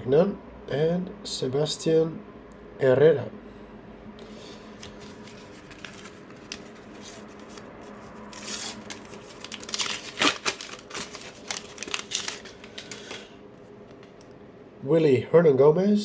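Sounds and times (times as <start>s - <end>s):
crackling rustles: 4.3s - 14.3s
wrapper tearing and crinkling: 4.8s - 13.3s.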